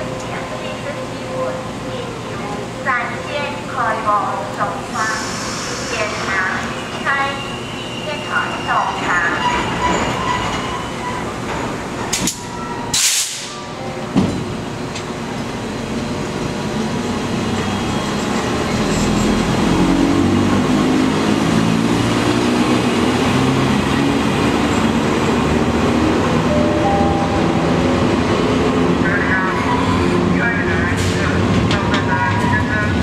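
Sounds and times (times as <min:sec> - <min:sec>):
air hissing: 0:04.9 - 0:07.1.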